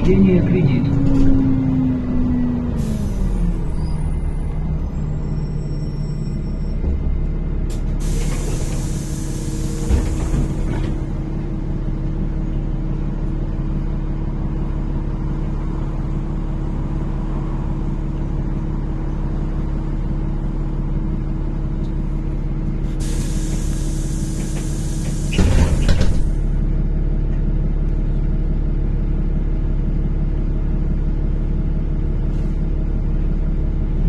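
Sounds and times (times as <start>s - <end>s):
bus engine droning: 0.0s - 34.0s
air brake hiss: 2.8s - 4.2s, 7.7s - 10.7s, 22.9s - 26.4s.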